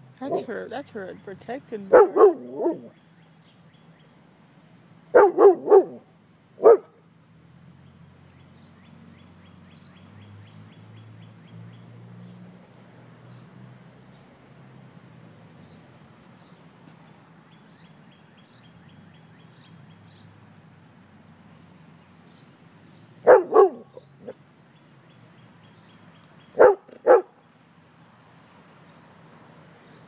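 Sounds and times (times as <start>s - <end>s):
dog barking: 0.2s - 0.5s, 1.9s - 2.9s, 5.1s - 6.0s, 6.6s - 6.9s, 23.2s - 24.4s, 26.5s - 27.4s.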